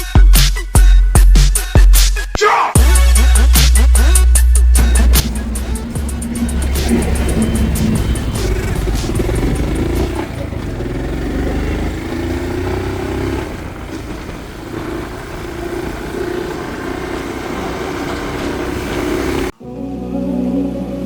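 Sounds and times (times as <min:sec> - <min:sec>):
motorcycle engine rumbling: 0:02.8 - 0:21.0.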